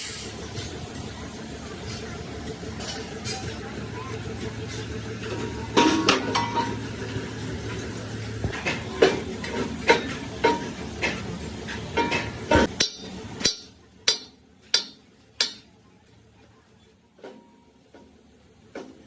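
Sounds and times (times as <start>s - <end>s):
hammer striking metal: 11.9s - 15.7s.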